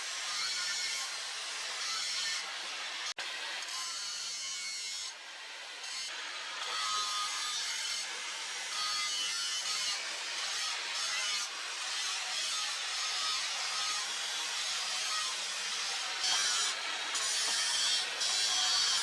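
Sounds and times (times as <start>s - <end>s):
tool scraping material: 8.8s - 19.0s.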